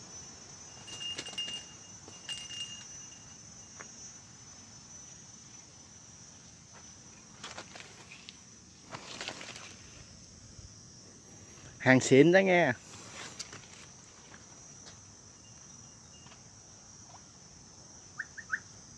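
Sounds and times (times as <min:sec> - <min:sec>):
insects chirping: 0:00.0 - 0:18.9
rustles of movement: 0:06.4 - 0:11.9, 0:12.8 - 0:15.2.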